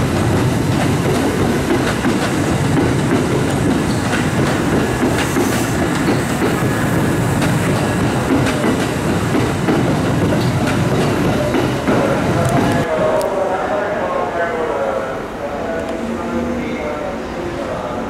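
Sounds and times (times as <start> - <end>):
train wheels clattering over switches: 0.3 - 6.7, 7.4 - 12.8.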